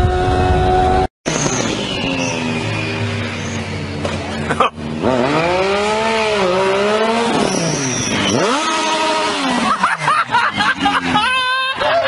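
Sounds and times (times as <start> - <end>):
motorcycle engine revving hard: 0.0 - 12.0.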